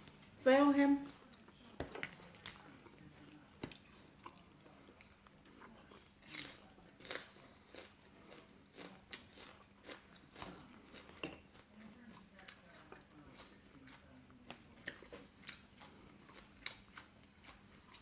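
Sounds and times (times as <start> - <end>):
person chewing food: 1.0 - 18.0.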